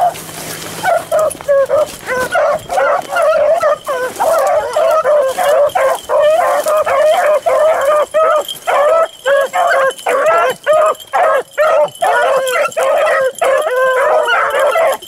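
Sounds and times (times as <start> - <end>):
pack of dogs baying: 0.0 - 15.0.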